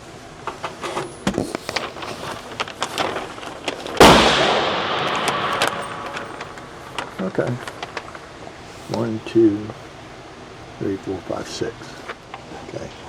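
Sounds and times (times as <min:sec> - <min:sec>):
handling clicks and knocks: 0:00.4 - 0:08.2
rifle shot with echo: 0:04.0 - 0:08.0.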